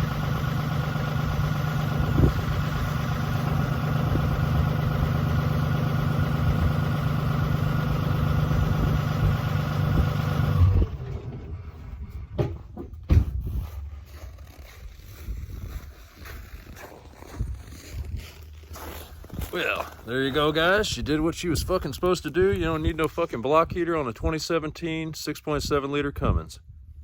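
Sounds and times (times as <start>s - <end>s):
diesel engine idling: 0.0s - 12.5s.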